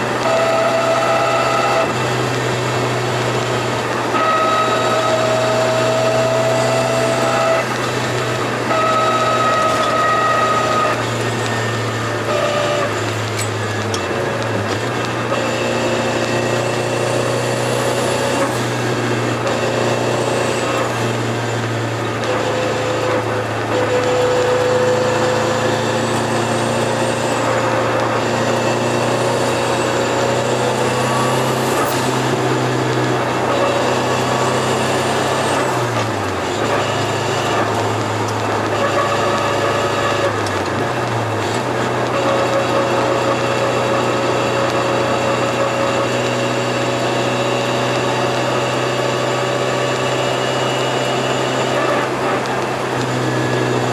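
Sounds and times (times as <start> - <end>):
car engine running: 0.0 - 53.9
turbo whistle: 0.1 - 2.2, 4.1 - 14.2.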